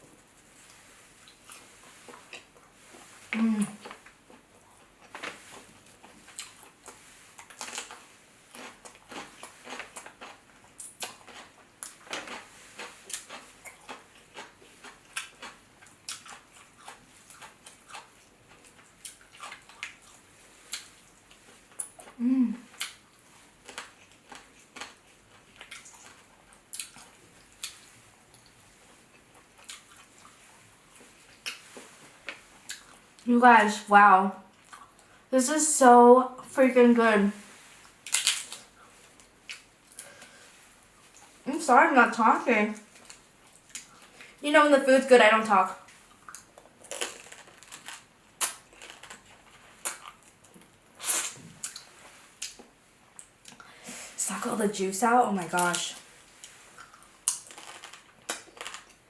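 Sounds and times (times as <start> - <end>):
person eating with wet smacking: 0.6 - 33.3, 34.5 - 35.2, 37.6 - 41.4, 45.8 - 53.7, 56.2 - 59.0
crab shells cracking: 38.1 - 38.7, 57.2 - 59.0.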